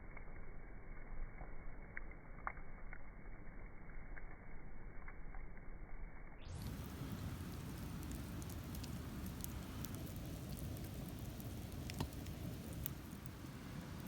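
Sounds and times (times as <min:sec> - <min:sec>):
fire crackles and pops: 0:00.0 - 0:14.0
campfire flames rushing: 0:06.5 - 0:14.0.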